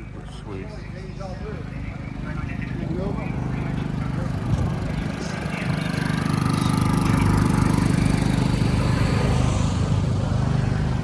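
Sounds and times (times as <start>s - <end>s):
engine pulsing rumble: 0.0s - 11.0s.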